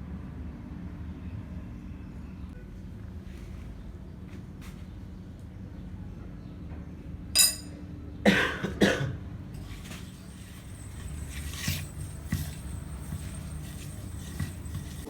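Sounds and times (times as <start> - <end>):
metal part clinking: 7.4 - 7.7
person coughing: 8.3 - 9.2.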